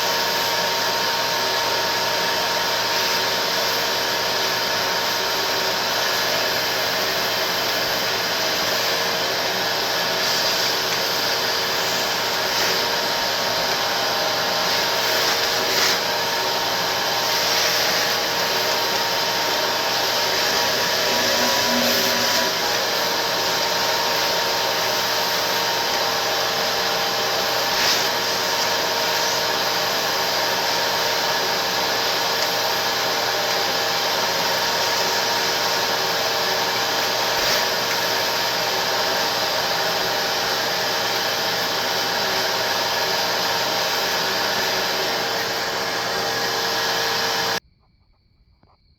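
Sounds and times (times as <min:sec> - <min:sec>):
motor whirring: 0:09.9 - 0:23.8.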